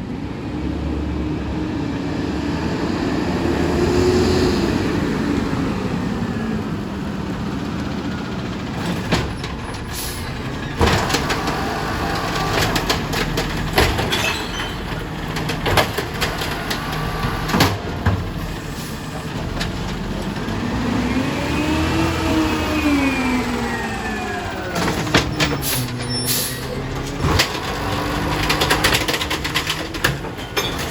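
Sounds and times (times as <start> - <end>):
garbage truck engine revving: 0.9 - 30.9
bangs and clatters: 8.8 - 18.6, 24.7 - 30.9.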